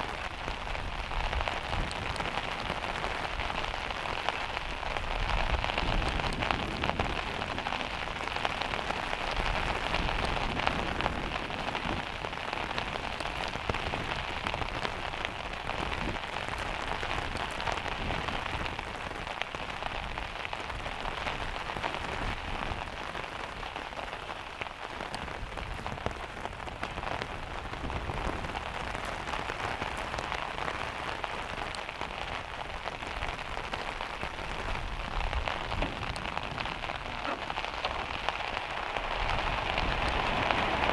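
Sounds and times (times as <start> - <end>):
heavy rain on metal roof: 0.0 - 40.9.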